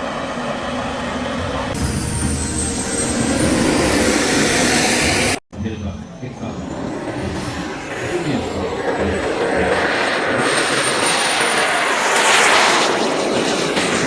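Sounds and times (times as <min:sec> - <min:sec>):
thin high whine: 0:00.0 - 0:13.3
airplane engine passing: 0:00.0 - 0:14.0.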